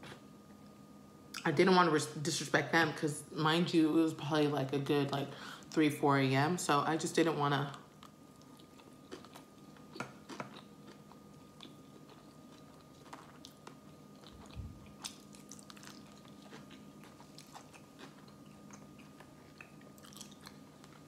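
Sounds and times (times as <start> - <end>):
faint steady hum: 0.0 - 21.0
person chewing: 8.0 - 21.0.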